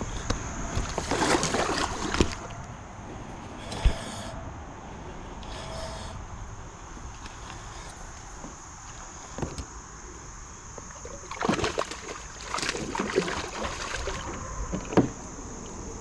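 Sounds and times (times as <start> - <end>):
fish splashing in water: 0.7 - 2.6, 11.0 - 14.6.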